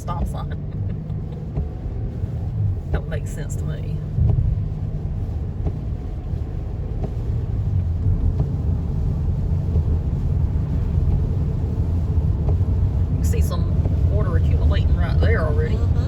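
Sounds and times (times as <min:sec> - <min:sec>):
car driving road noise: 0:00.0 - 0:16.0.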